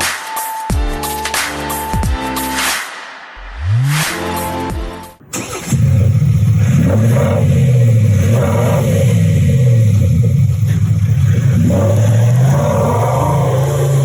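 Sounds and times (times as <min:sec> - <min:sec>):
electronic exhaust note revving: 0:05.6 - 0:14.0.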